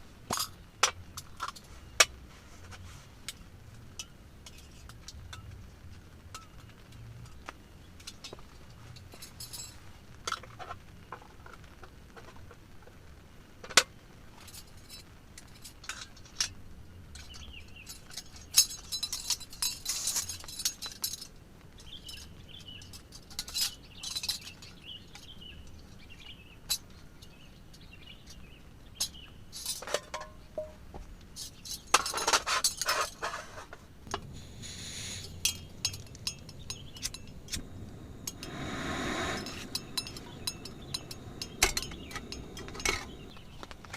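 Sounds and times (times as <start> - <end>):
pots and utensils clinking: 29.6 - 30.8, 35.2 - 37.6, 38.2 - 43.9.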